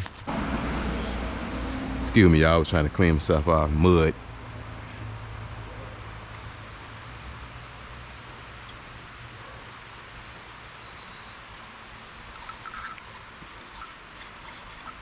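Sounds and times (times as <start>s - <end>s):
short sharp clicks and rustles: 12.3s - 15.0s.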